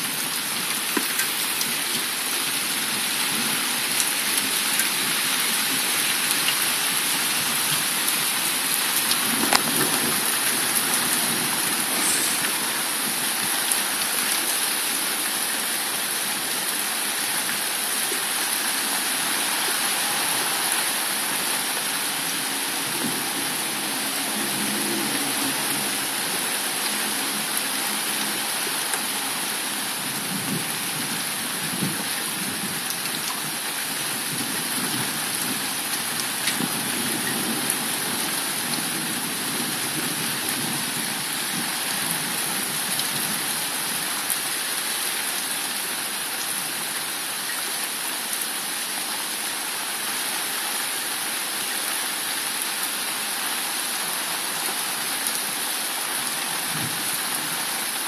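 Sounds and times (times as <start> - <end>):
heavy rain hissing: 0.0 - 32.8.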